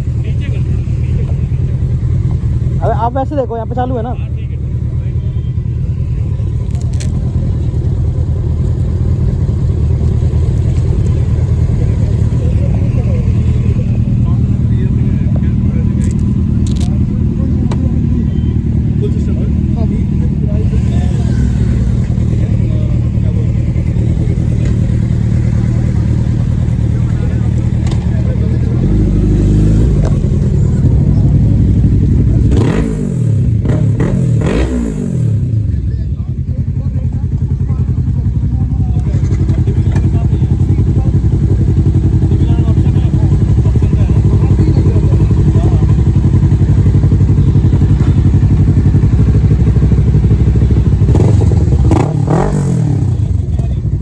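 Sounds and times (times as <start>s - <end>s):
motorcycle engine rumbling: 0.0s - 54.0s.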